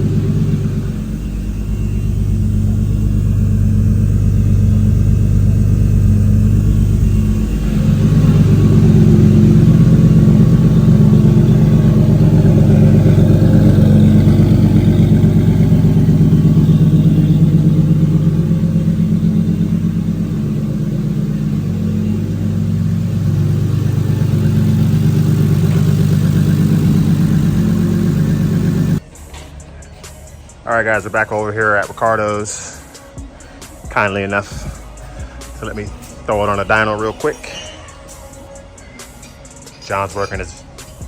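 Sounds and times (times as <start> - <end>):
car engine running: 0.0 - 29.1.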